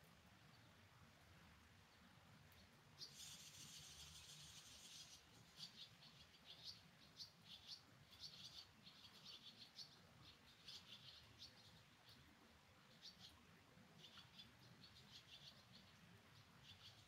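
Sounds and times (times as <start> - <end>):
rain hiss: 2.5 - 5.4.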